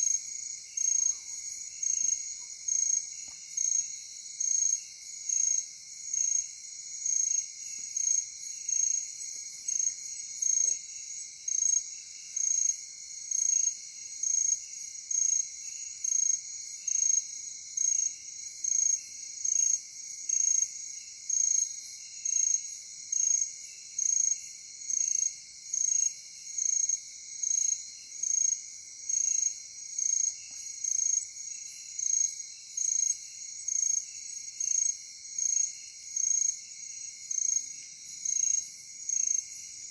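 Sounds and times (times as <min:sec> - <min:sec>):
loud high cricket chirp: 0:00.0 - 0:39.9.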